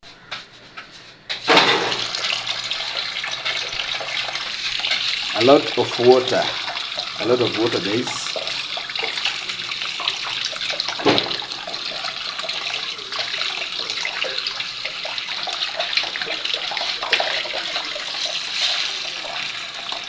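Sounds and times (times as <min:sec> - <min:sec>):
water running from a tap: 0:01.5 - 0:20.0.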